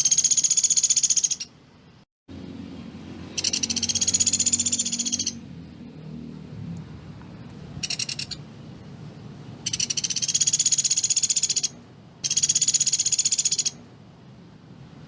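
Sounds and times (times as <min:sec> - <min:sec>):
bird rattling trill: 0:00.0 - 0:01.6, 0:03.3 - 0:05.4, 0:07.8 - 0:08.4, 0:09.6 - 0:13.8.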